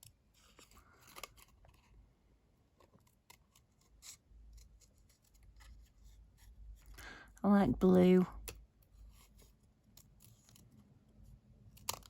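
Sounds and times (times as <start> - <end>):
scissors snipping paper: 11.7 - 12.0.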